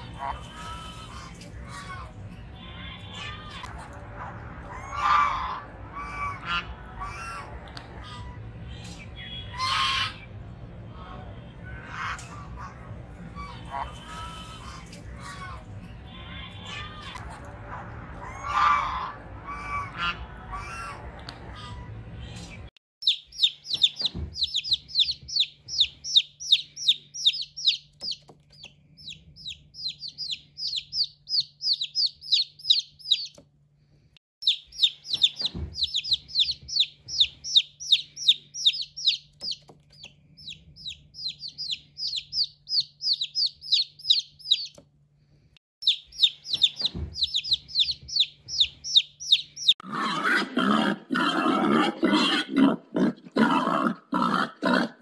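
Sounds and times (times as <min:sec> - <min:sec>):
small bird chirping: 0:22.2 - 0:33.4, 0:34.4 - 0:44.8, 0:45.8 - 0:49.8
rough animal sound: 0:49.8 - 0:55.0.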